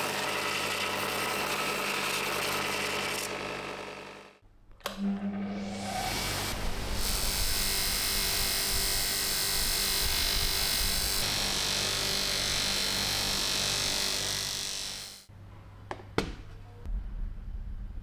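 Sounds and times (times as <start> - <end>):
small electric motor tool whirring: 0.0 - 4.3, 5.7 - 15.3.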